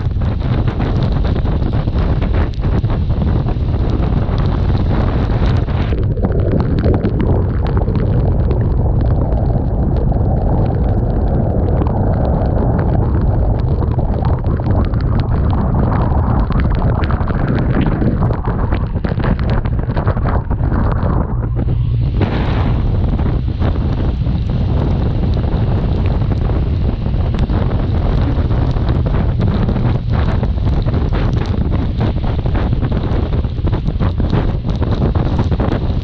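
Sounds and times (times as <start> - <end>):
wind buffeting microphone: 0.0 - 36.0
motorcycle running: 16.0 - 36.0.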